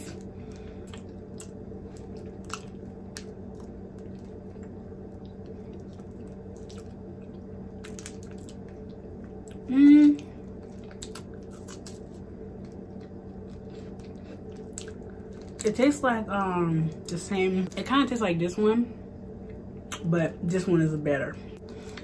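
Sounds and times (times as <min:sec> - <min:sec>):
person chewing: 0:00.0 - 0:15.7
low hum: 0:00.0 - 0:22.0.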